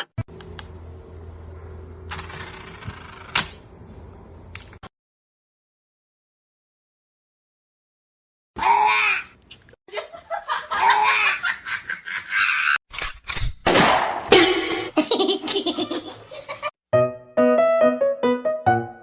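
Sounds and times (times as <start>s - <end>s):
person laughing: 9.9s - 12.8s, 14.6s - 16.7s
piano music: 16.9s - 19.0s.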